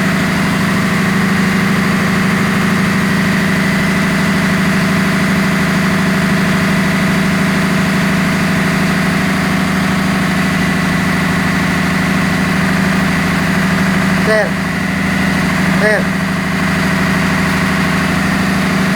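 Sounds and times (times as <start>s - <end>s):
engine room machinery drone: 0.0s - 18.9s.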